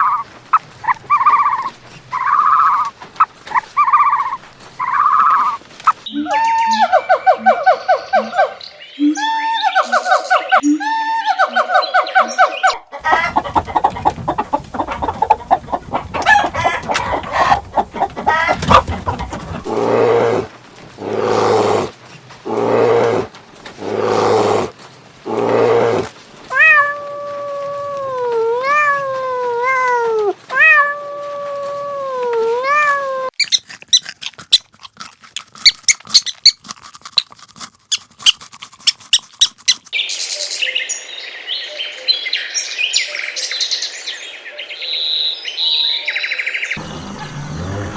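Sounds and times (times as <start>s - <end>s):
animal cries: 0.0s - 2.9s, 19.5s - 24.7s, 25.3s - 33.4s
animal calls and clicks: 0.0s - 10.8s, 11.4s - 40.4s
cat meowing: 26.5s - 33.3s.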